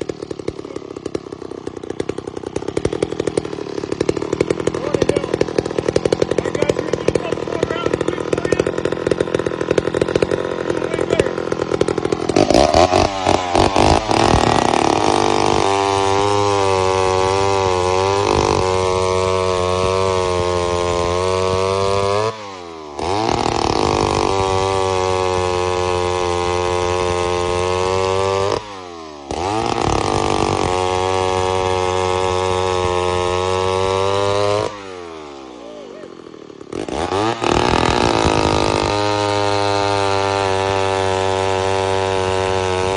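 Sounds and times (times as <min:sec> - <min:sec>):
chainsaw running: 0:00.0 - 0:42.9.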